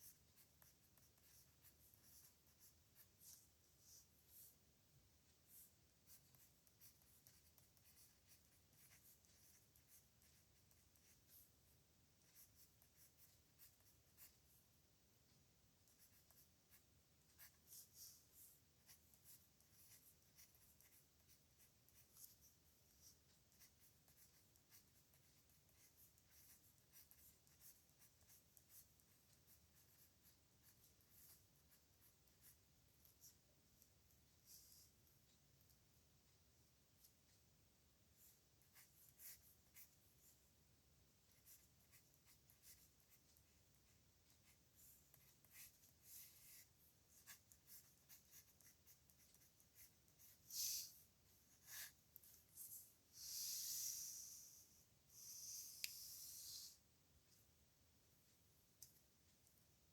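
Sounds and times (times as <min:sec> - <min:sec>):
pen scratching on paper: 0:00.0 - 0:04.5, 0:05.5 - 0:11.5, 0:12.2 - 0:14.6, 0:15.8 - 0:33.4, 0:38.2 - 0:40.0, 0:41.3 - 0:52.7.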